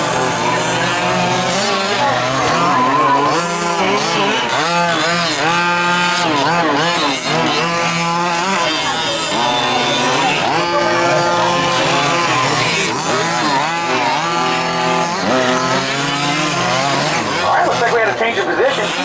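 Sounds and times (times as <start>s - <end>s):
small two-stroke engines revving: 0.0s - 19.0s.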